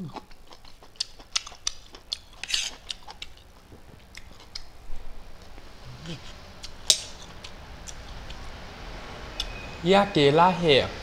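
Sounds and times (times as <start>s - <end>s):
person chewing with mouth clicks: 0.0s - 4.8s, 5.4s - 8.5s.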